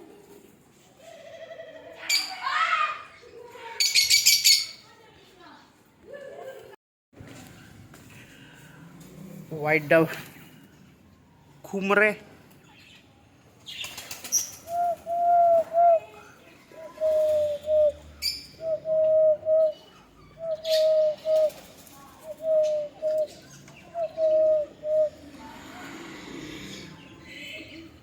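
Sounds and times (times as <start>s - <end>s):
small birds chirping: 9.6s - 28.0s
dove cooing: 14.6s - 27.1s.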